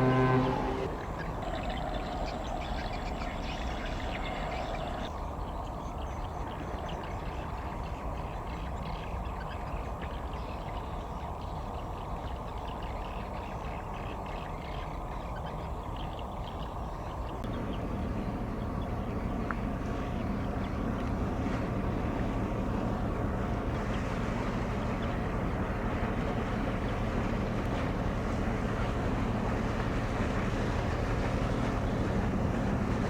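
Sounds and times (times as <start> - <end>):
ship low rumble: 0.0 - 33.0.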